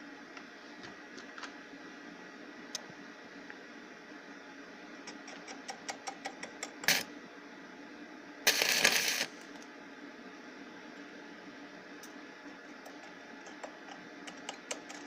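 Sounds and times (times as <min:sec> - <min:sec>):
welding arc crackling: 0:05.2 - 0:07.1, 0:08.5 - 0:09.6
small sparking ticks: 0:08.5 - 0:09.7.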